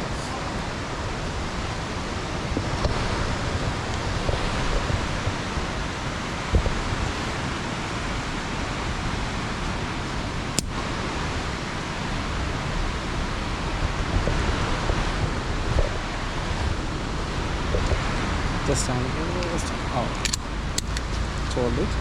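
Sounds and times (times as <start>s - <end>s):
waterfall roaring: 0.0s - 20.8s
wind buffeting microphone: 0.0s - 22.0s
sharp click: 10.6s - 10.8s, 20.1s - 21.1s.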